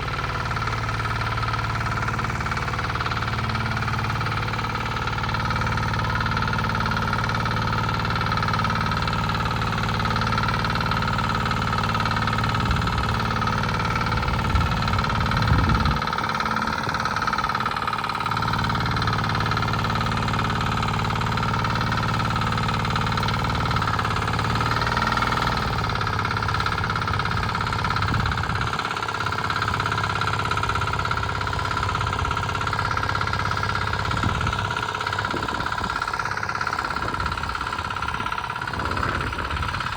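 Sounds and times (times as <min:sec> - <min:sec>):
power tiller engine running: 0:00.0 - 0:39.9.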